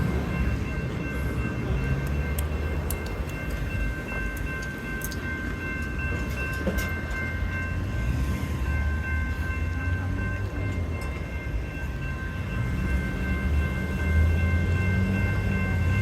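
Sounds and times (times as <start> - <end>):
light rail train rumble: 0.0 - 16.0
scattered clicks: 2.0 - 5.9.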